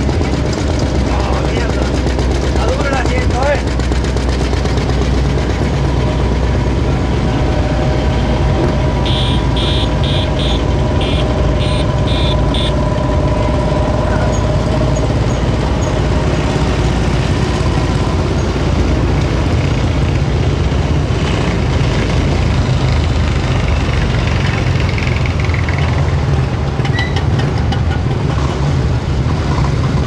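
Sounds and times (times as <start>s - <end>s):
motorcycle engines running: 0.0s - 30.0s
short high-pitched tones: 9.0s - 12.7s.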